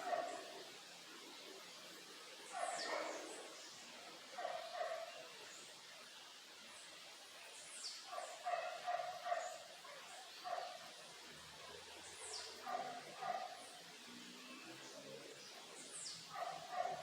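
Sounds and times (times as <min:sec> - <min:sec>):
dog barking: 0:00.0 - 0:00.6, 0:02.5 - 0:03.3, 0:04.4 - 0:05.2, 0:08.1 - 0:10.9, 0:12.6 - 0:13.7, 0:16.3 - 0:17.0
birds chirping: 0:00.0 - 0:17.0.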